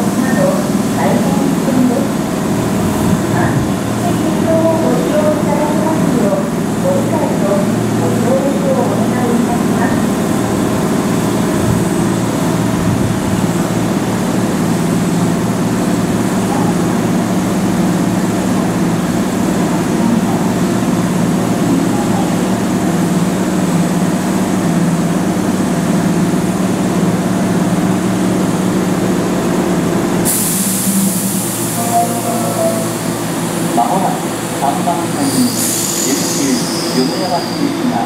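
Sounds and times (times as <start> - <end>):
electric train equipment droning: 0.0 - 38.0.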